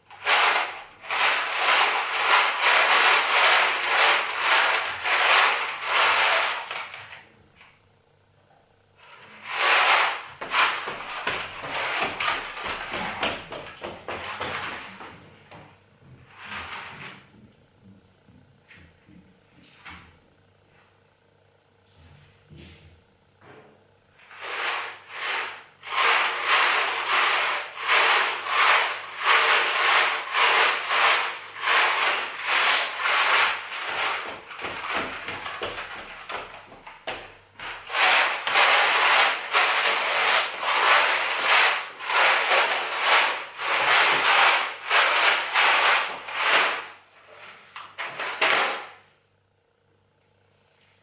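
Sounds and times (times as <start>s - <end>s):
rhythmic scraping strokes: 0.0s - 7.0s, 9.0s - 18.3s, 24.2s - 47.4s.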